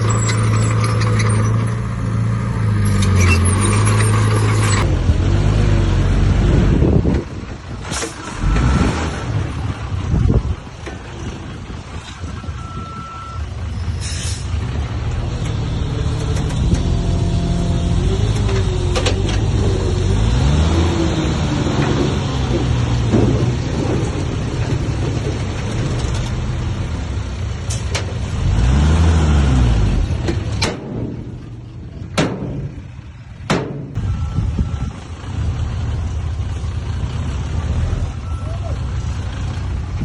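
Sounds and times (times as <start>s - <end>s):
diesel machinery engine revving: 0.0s - 40.0s
sharp metallic clanks: 30.2s - 34.0s.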